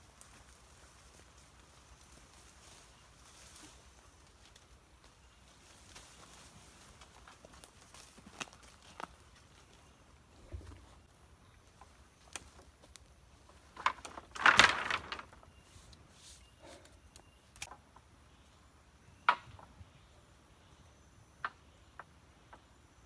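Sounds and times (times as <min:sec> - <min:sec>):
undergrowth rustling: 0:00.0 - 0:17.7
branches cracking: 0:05.8 - 0:09.2, 0:11.6 - 0:15.6.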